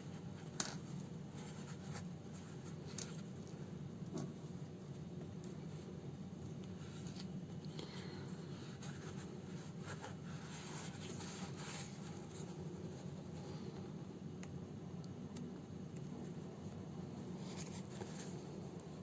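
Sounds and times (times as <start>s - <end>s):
steady low hum: 0.0s - 19.0s
needle and thread through fabric: 8.6s - 13.2s.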